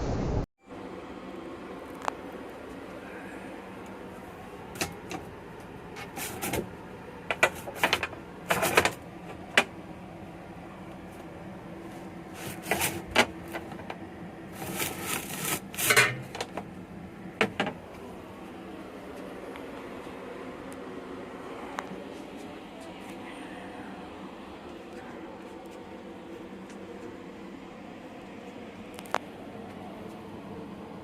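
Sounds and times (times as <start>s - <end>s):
low hum in train carriage: 0.0s - 31.0s
handling noises: 11.0s - 16.8s.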